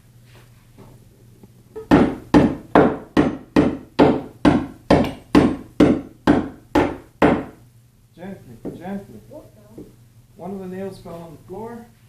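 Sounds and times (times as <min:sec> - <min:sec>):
hammer striking nails in wood: 0:01.9 - 0:07.6.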